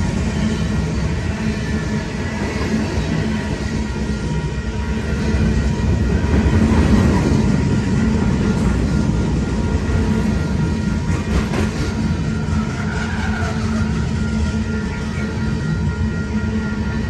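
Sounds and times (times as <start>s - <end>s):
freight train wheels rumbling on rail: 0.0s - 17.0s.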